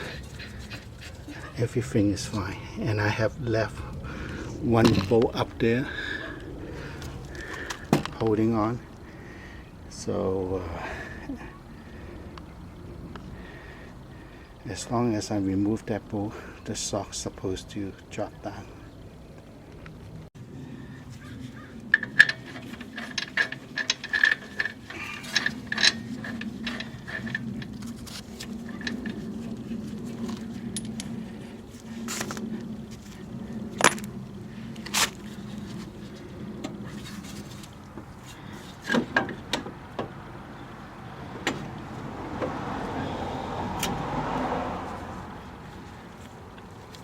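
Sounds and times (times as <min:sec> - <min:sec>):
metal scraping: 0:00.0 - 0:08.3
metal clanks: 0:21.9 - 0:29.2
metal tools clicking on bolts: 0:21.9 - 0:29.2.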